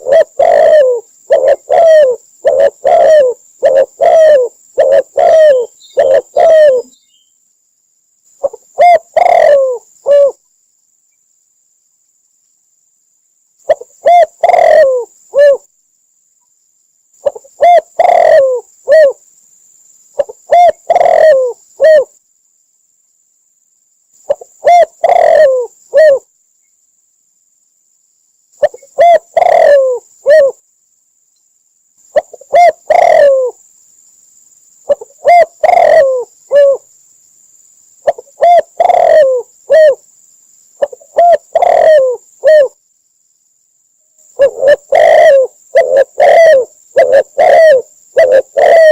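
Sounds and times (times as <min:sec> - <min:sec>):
dove cooing: 0:00.0 - 0:07.0, 0:08.4 - 0:10.4, 0:13.7 - 0:15.7, 0:17.2 - 0:19.2, 0:20.2 - 0:22.2, 0:24.3 - 0:26.3, 0:28.6 - 0:30.6, 0:32.1 - 0:33.6, 0:34.9 - 0:36.9, 0:38.0 - 0:40.0, 0:40.8 - 0:42.8, 0:44.3 - 0:48.9.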